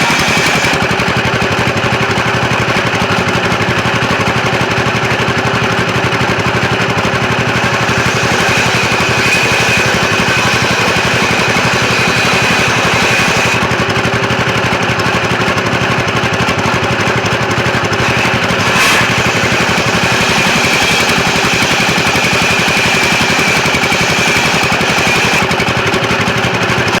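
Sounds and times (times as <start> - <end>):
high machine whine: 0.0 - 1.1, 7.2 - 14.0, 18.0 - 25.7
sawmill machinery pulsing: 0.0 - 27.0.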